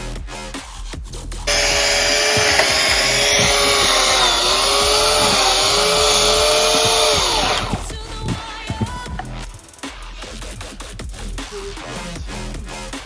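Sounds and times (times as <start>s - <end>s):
electric chainsaw motor whining: 1.5s - 9.6s.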